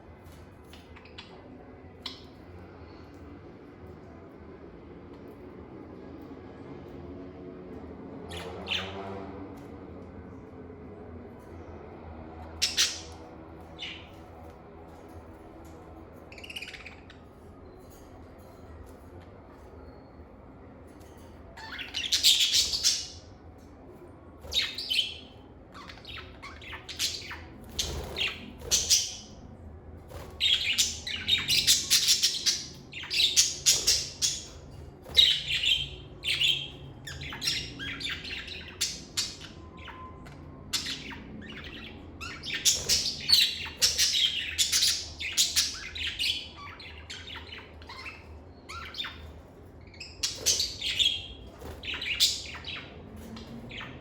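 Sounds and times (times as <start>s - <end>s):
lovebirds chirping: 16.3s - 17.8s, 21.6s - 23.3s, 24.4s - 29.4s, 30.1s - 54.0s.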